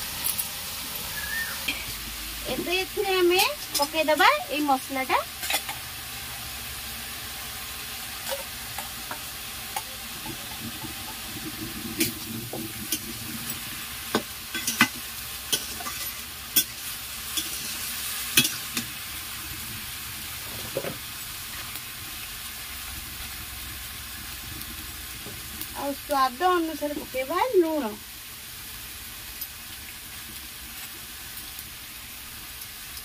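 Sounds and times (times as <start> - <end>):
vegetables sizzling in oil: 0.0 - 33.0
ladle scraping and knocking pan: 20.4 - 21.0.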